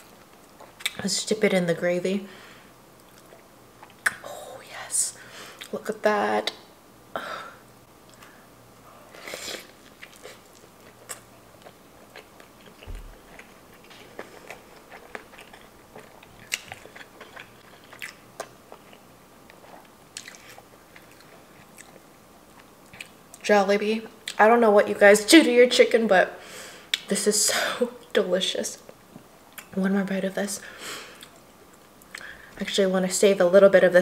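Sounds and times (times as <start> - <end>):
chewing with small crunches: 0.0 - 1.0, 3.0 - 4.2, 9.1 - 23.4.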